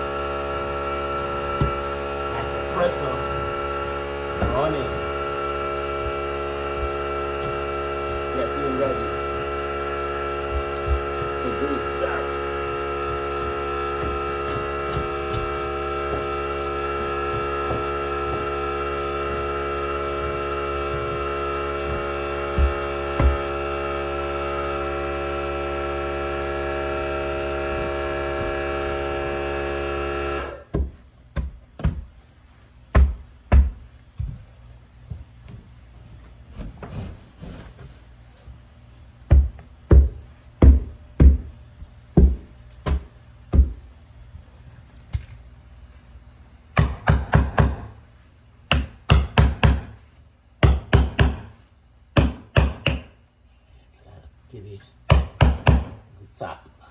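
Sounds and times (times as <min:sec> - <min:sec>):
air compressor humming: 0:00.0 - 0:56.9
sharp knocks: 0:55.1 - 0:56.0.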